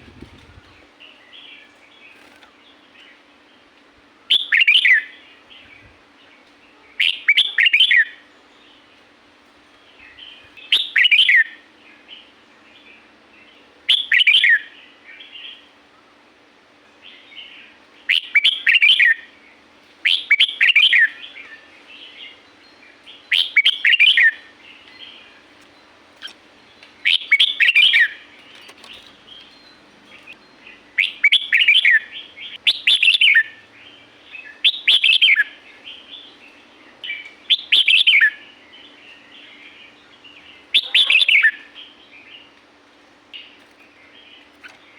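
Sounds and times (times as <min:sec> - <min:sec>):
bird singing warbling phrases: 0:04.3 - 0:05.9, 0:06.7 - 0:08.8, 0:09.9 - 0:15.7, 0:17.0 - 0:42.5.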